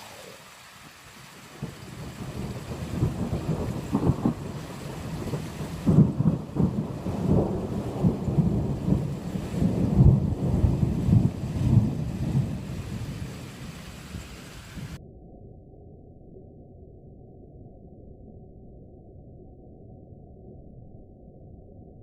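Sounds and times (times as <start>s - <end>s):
thunder rumbling: 0.0s - 15.0s.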